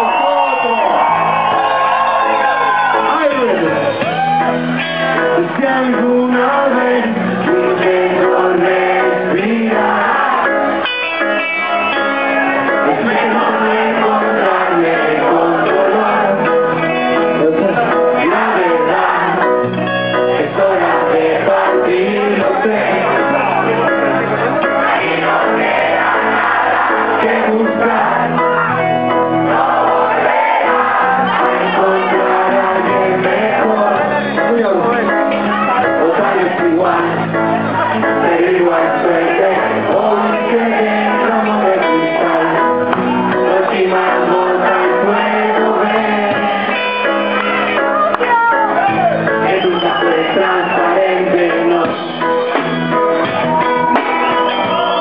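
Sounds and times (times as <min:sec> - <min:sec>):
reggae band playing live: 0:00.8 - 0:55.0
person singing: 0:05.0 - 0:24.0, 0:31.2 - 0:52.5.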